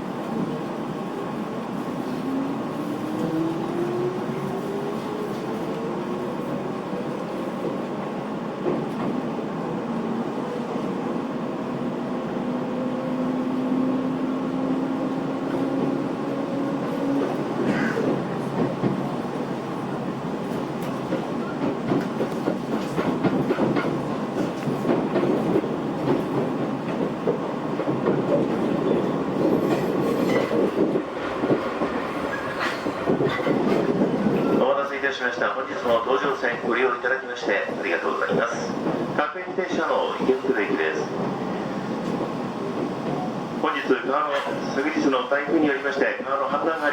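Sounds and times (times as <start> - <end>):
train wheels rattling and clicking: 8.6 - 9.2, 16.7 - 19.5, 20.3 - 34.6.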